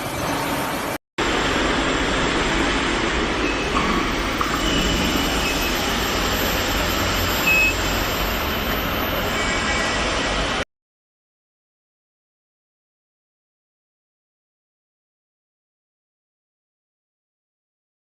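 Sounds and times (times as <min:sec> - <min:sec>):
industrial machinery rumble: 0:00.0 - 0:10.6.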